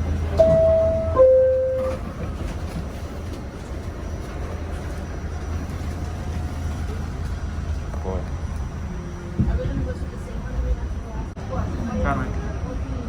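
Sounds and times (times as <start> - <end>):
subway train rumble: 0.0 - 13.0
two-tone door chime: 0.4 - 2.1.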